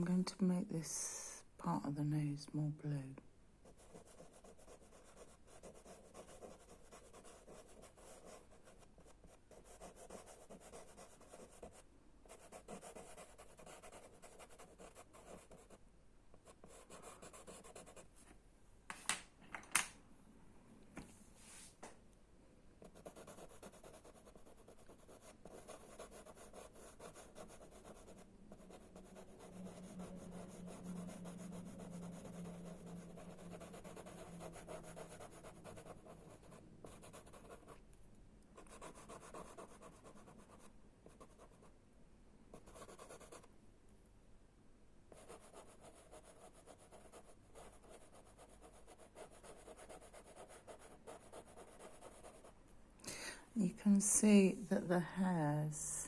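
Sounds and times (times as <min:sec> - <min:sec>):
faint low hum: 0:00.0 - 0:56.0
chalk pastel scratching on paper: 0:03.6 - 0:15.8, 0:16.4 - 0:18.1, 0:22.8 - 0:37.8, 0:38.6 - 0:41.7, 0:42.6 - 0:43.5, 0:45.1 - 0:52.5.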